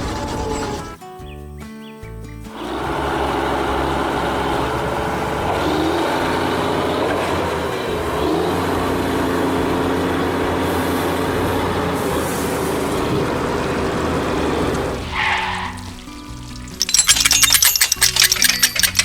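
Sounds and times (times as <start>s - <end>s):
heavy truck engine running: 0.0s - 1.0s, 2.5s - 16.0s.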